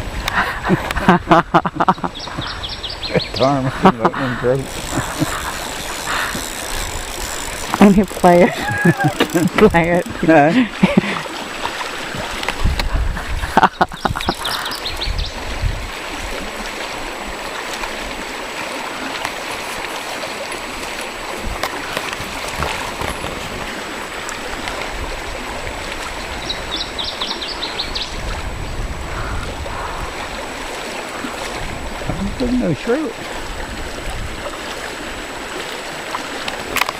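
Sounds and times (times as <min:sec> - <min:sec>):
flowing river water: 0:00.0 - 0:36.9.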